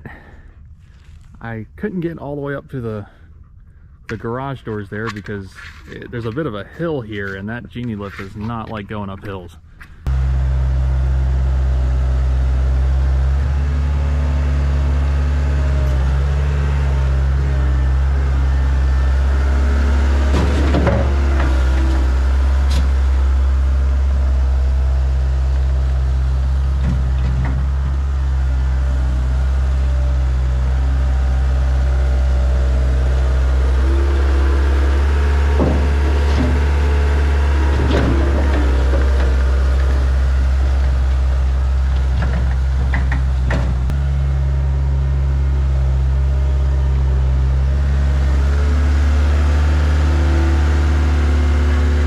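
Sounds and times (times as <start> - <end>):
metal clanks and scrapes: 4.0 - 8.9
skid steer engine running: 10.0 - 52.0.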